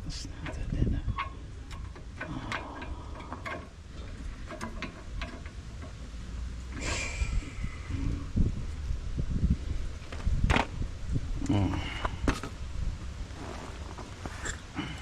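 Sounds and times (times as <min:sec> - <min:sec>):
scraping rustle: 0:13.2 - 0:15.0.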